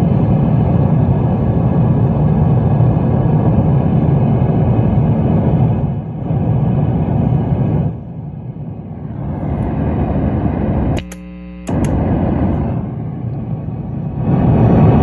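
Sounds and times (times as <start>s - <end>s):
amp hum: 0.0s - 15.0s
crackling rumbling guitar amp noise: 4.9s - 15.0s
pedal switch click: 11.0s - 12.0s.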